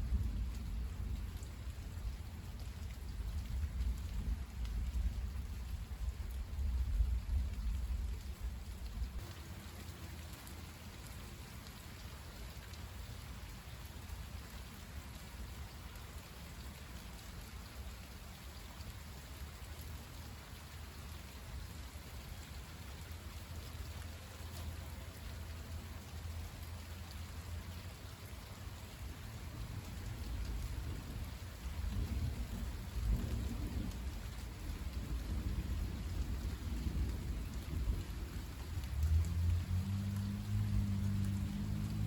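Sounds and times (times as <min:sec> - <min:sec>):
low thunder rumble: 0:00.0 - 0:09.2, 0:29.6 - 0:39.8
steady rain falling: 0:00.0 - 0:42.0.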